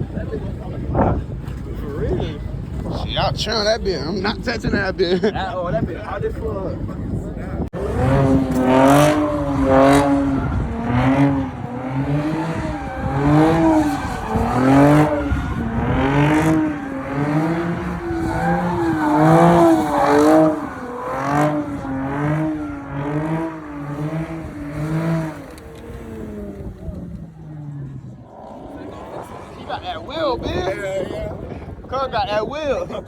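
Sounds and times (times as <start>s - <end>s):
car engine revving hard: 7.7s - 31.0s
tyres squealing: 7.8s - 26.4s.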